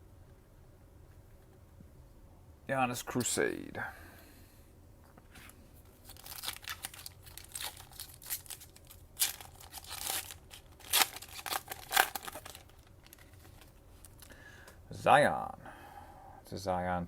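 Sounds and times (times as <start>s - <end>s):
foil wrapper tearing and crinkling: 6.0s - 14.3s.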